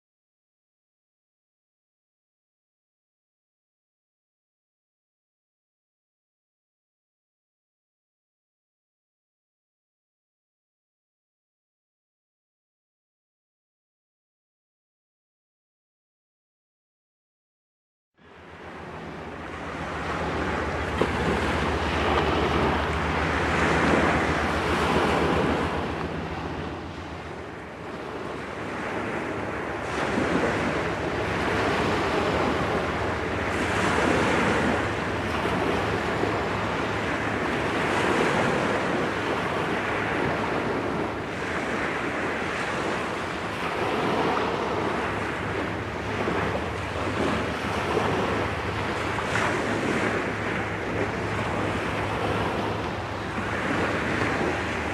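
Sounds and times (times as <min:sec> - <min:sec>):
low engine hum: 0:18.2 - 0:54.9
waves washing on shore: 0:18.2 - 0:54.9
wind buffeting microphone: 0:18.3 - 0:54.9.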